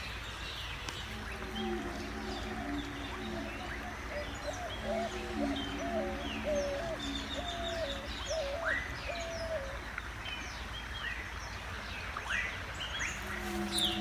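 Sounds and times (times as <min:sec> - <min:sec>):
birds chirping and whistling: 0:00.0 - 0:09.8, 0:12.3 - 0:14.0
low bird call: 0:00.6 - 0:10.0, 0:12.3 - 0:14.0.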